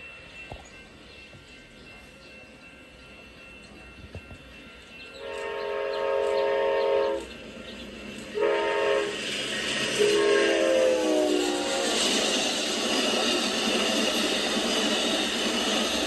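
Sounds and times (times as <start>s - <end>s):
passing train rushing: 0.0s - 16.0s
locomotive air horn blasts: 5.2s - 7.3s, 8.4s - 9.2s, 10.0s - 11.8s.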